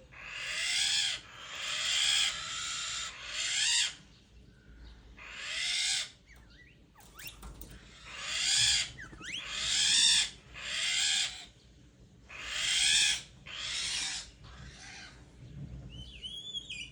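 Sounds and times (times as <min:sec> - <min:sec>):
harsh bird calls: 0:00.0 - 0:15.4
small bird chirping: 0:03.8 - 0:11.6.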